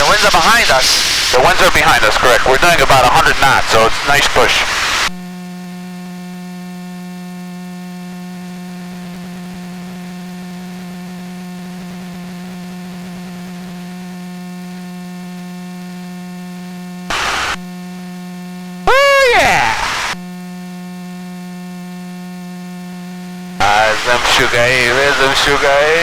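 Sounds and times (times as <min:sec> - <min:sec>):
short burst of noise: 0:17.1 - 0:17.6
aircraft intercom hum: 0:18.9 - 0:20.2, 0:23.6 - 0:26.0.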